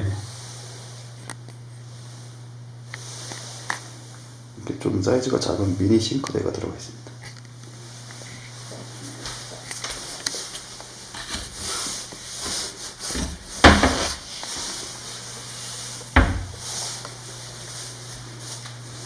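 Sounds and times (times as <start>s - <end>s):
cabinet door rubbing and clicks: 13.1s - 14.3s, 16.2s - 16.7s
cabinet door knocks shut: 13.6s - 14.2s, 16.2s - 16.6s.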